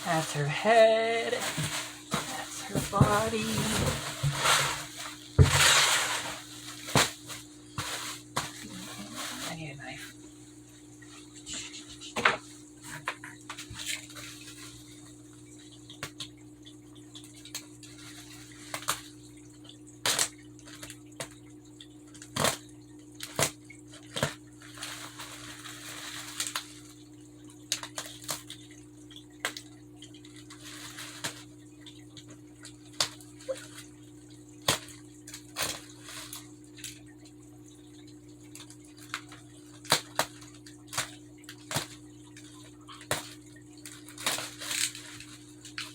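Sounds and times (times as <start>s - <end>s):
packaging rustling: 0.1s - 9.6s.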